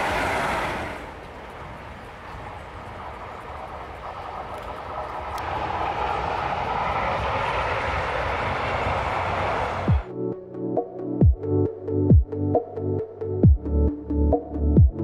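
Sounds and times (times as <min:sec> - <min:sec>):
train wheels rushing on rails: 0:00.0 - 0:10.1.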